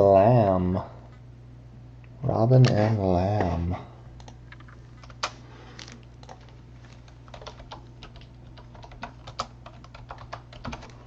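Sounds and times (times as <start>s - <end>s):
keyboard typing: 4.2s - 11.0s.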